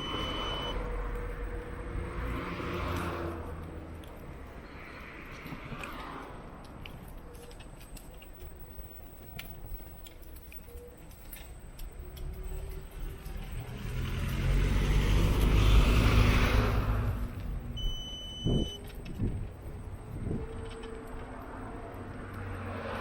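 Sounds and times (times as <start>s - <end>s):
short high beep: 0.0s - 0.8s, 17.8s - 18.8s
vehicle passing by: 0.0s - 6.6s, 12.2s - 17.8s, 19.8s - 23.0s.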